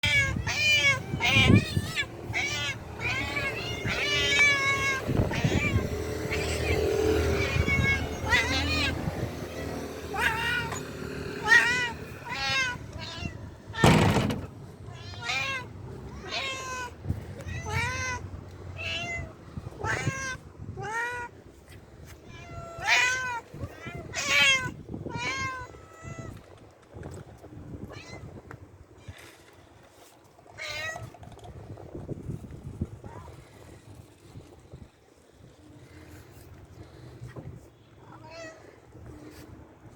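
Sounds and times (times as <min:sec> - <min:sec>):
cat meowing: 0:00.0 - 0:14.3, 0:14.9 - 0:21.4, 0:22.2 - 0:26.4, 0:38.0 - 0:38.8.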